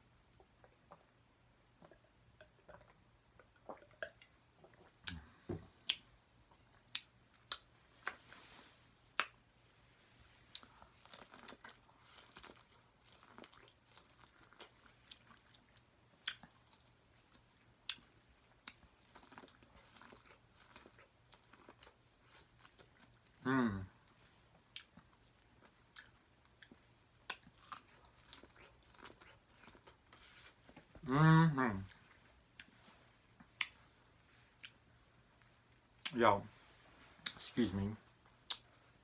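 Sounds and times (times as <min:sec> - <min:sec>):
person chewing food: 0:01.8 - 0:08.5, 0:10.4 - 0:31.0, 0:31.9 - 0:36.2, 0:38.1 - 0:39.0
wet mouth clicks: 0:05.0 - 0:06.1, 0:06.9 - 0:08.2, 0:09.2 - 0:09.4, 0:33.5 - 0:33.8, 0:38.4 - 0:38.7.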